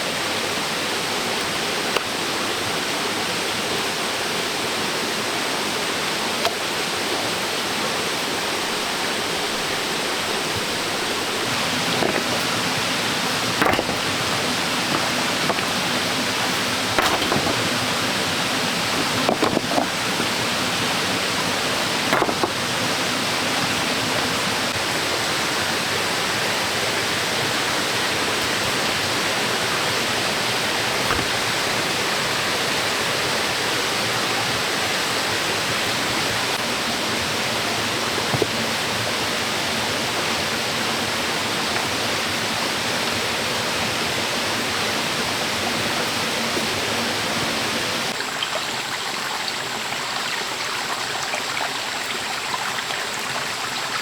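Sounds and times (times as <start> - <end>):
flowing water rushing: 0.0 - 54.0
light knocks: 10.5 - 18.2, 22.1 - 23.0, 31.0 - 31.6.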